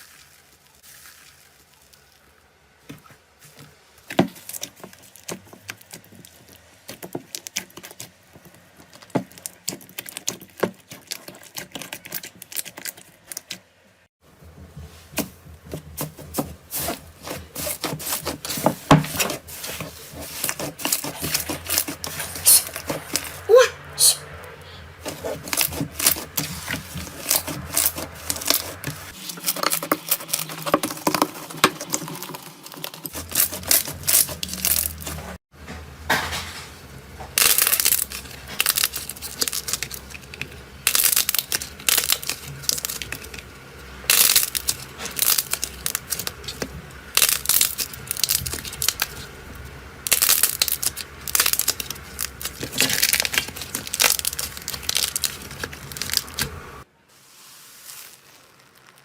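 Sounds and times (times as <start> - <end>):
slime crackling and popping: 37.4 - 43.4, 44.1 - 49.3, 50.0 - 56.6, 57.8 - 59.0.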